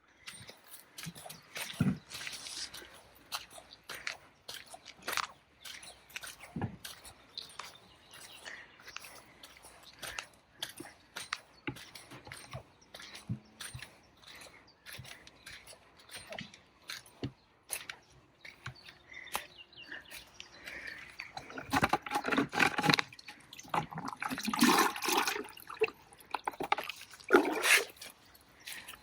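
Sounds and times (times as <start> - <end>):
water gushing onto plants: 21.6 - 28.1.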